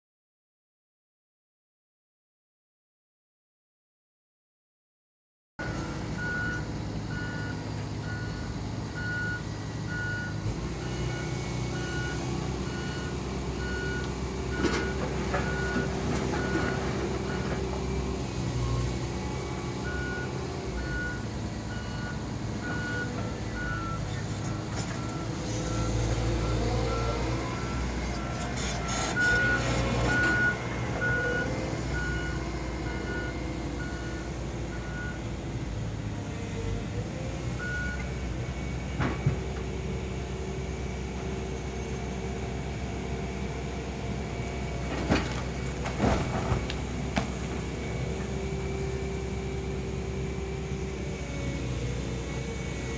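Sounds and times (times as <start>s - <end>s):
reversing alarm beeping: 5.6s - 17.6s, 19.6s - 35.3s
excavator engine running: 5.6s - 52.9s.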